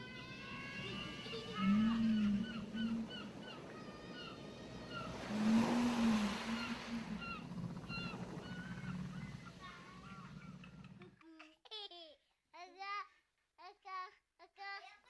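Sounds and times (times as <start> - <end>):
surf washing onto beach: 0.0 - 10.4
low whale moan: 0.0 - 11.0.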